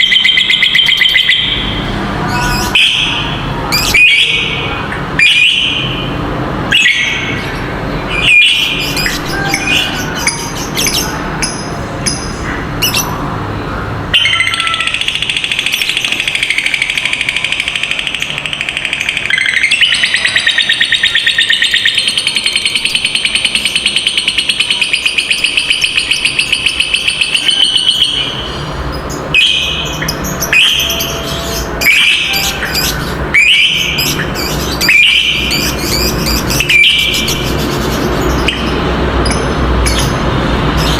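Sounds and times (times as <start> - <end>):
lovebird chattering trill: 6.7 - 13.2, 14.2 - 40.9
lovebird squawks: 14.1 - 40.1.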